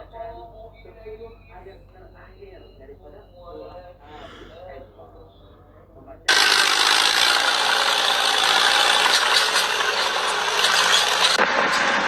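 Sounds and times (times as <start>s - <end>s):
loud mechanical rattling: 6.3s - 12.0s.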